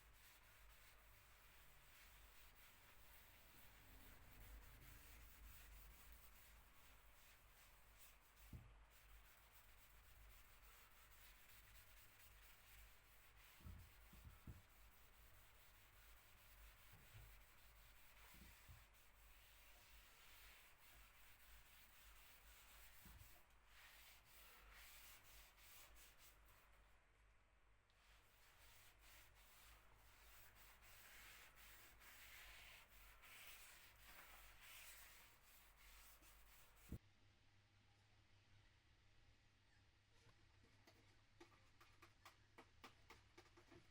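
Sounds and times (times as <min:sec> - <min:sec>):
rubbing on wooden surface: 0:28.2 - 0:37.0.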